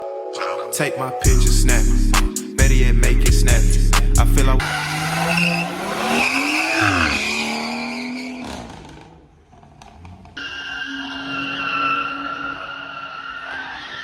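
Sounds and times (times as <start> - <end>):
car engine revving hard: 4.4 - 9.3
tyres squealing: 4.6 - 9.1.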